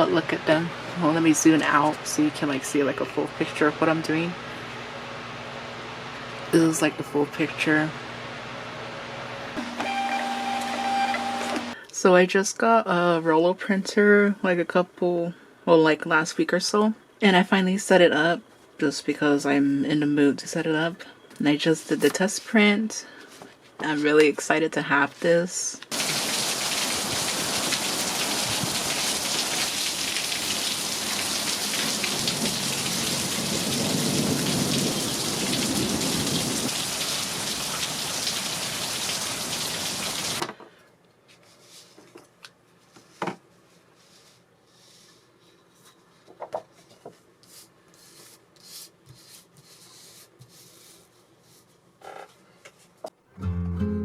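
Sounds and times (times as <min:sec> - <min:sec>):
heavy rain: 0:26.0 - 0:40.4
thunder rumbling: 0:32.2 - 0:36.7.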